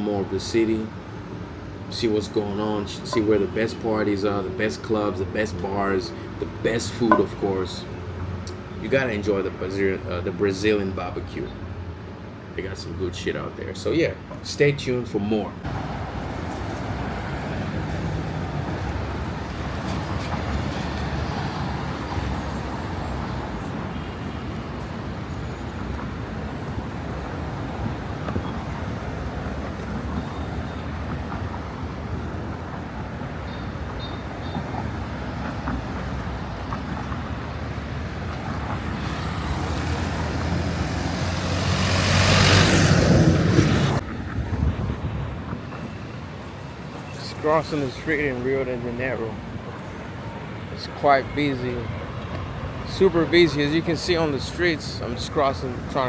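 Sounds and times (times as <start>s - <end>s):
street traffic noise: 0.0s - 56.0s
vehicle passing close: 37.5s - 45.0s.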